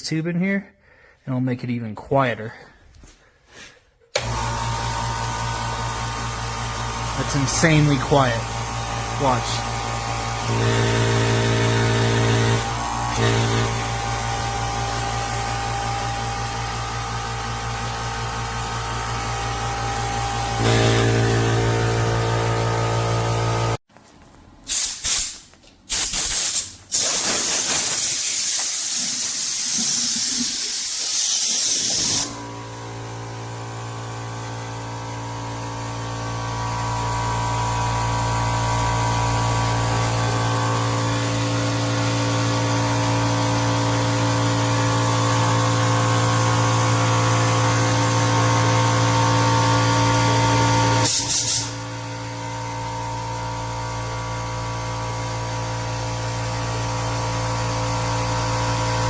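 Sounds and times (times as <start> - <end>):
air compressor humming: 3.5 - 23.8, 24.5 - 59.0
compressed air hissing: 24.7 - 32.4, 51.0 - 51.8
short air blasts: 24.7 - 32.4, 51.0 - 51.9.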